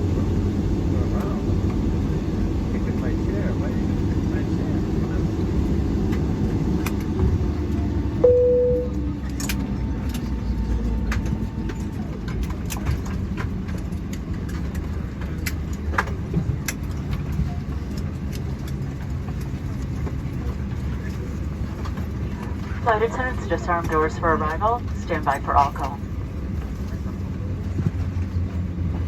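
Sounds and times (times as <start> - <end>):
cabin low rumble: 22.5 - 26.1.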